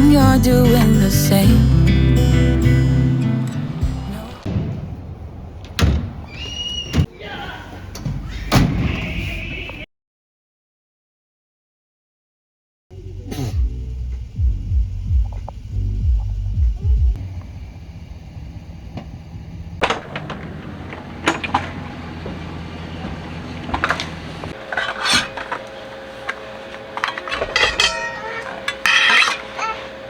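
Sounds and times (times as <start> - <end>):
low hum: 0.0 - 5.8, 12.9 - 30.0
clinks and knocks of handling: 27.0 - 29.8.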